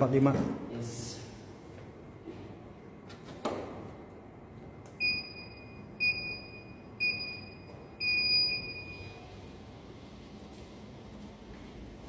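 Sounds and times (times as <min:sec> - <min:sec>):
treadmill console beeping: 0:05.0 - 0:09.3.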